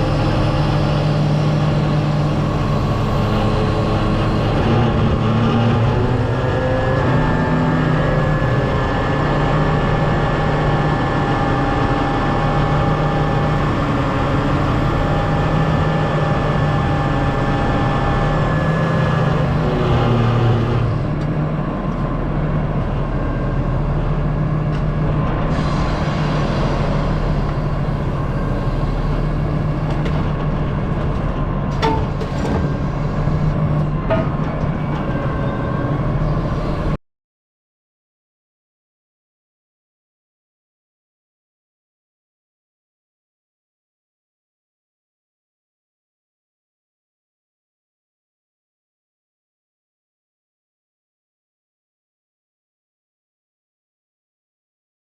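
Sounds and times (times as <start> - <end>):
heavy machine engine running: 0.0 - 37.0.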